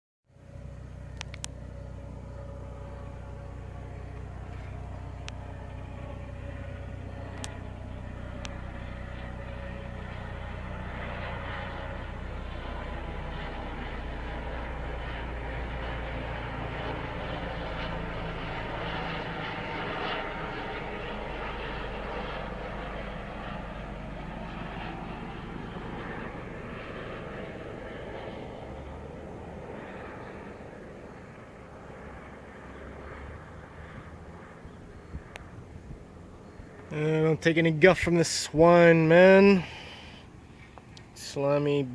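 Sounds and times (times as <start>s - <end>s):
helicopter engine and rotor drone: 0.3s - 41.9s
sharp clicks: 1.2s - 1.5s.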